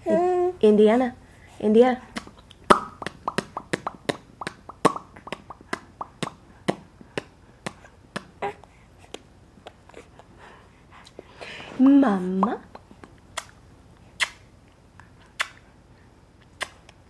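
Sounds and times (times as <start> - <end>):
baby popping lips: 2.2 - 8.3, 12.4 - 13.6.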